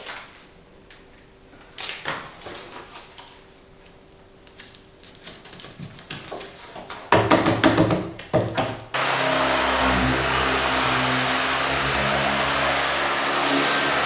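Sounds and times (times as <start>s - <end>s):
steady motor running: 9.0s - 14.0s.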